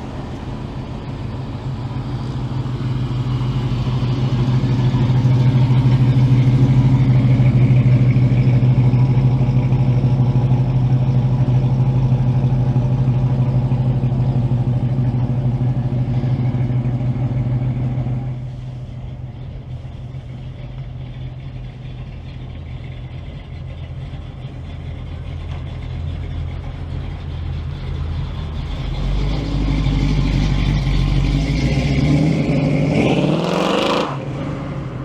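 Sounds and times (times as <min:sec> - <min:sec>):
cars driving past: 0:00.0 - 0:10.0, 0:25.2 - 0:35.0
car engine revving: 0:00.0 - 0:35.0.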